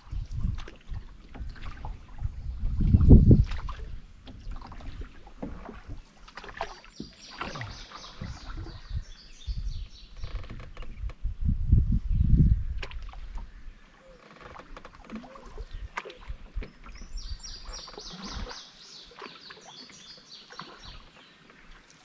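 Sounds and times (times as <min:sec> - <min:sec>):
low water surge: 0:00.0 - 0:09.7, 0:15.0 - 0:22.0
paddle strokes in water: 0:00.0 - 0:11.2, 0:12.7 - 0:22.0
water against canoe hull: 0:00.0 - 0:11.4, 0:12.4 - 0:22.0.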